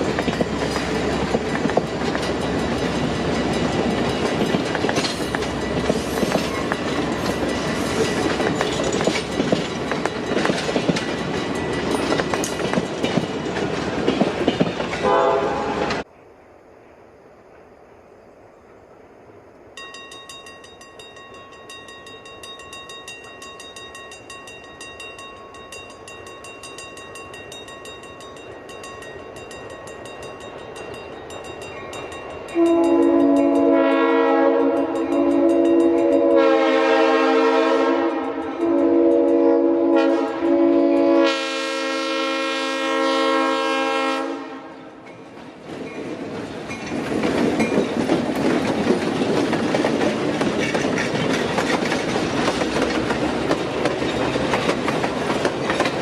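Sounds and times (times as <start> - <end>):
crossing bell ringing: 0.0 - 15.3, 19.8 - 43.2
train wheels rumbling and clattering: 0.0 - 16.1, 45.0 - 56.0
locomotive horn blasts: 15.0 - 16.0, 32.5 - 45.0.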